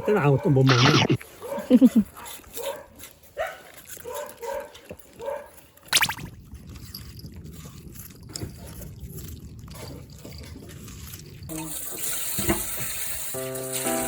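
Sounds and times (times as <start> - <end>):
running water rushing: 6.0 - 6.4.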